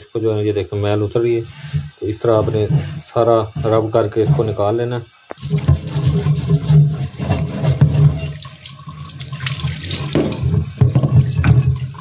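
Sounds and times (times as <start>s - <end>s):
scrubbing by hand: 1.4s - 4.7s, 5.3s - 12.0s
tap water running and splashing: 5.3s - 12.0s.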